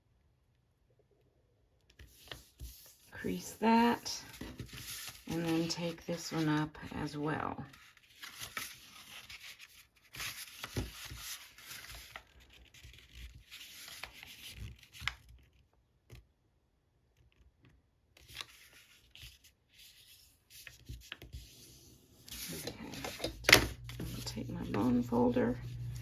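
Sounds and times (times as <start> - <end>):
paper rustling as it is folded: 2.0 - 6.9, 7.7 - 15.7, 18.2 - 26.0.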